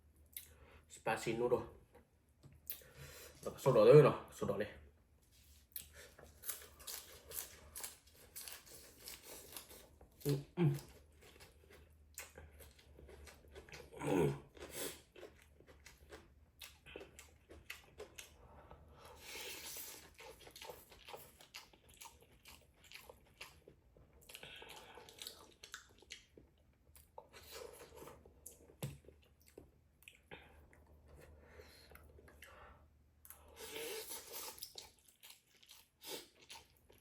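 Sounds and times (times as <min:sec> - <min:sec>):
wet chewing and mouth clicks: 0:05.7 - 0:18.4, 0:19.5 - 0:30.8.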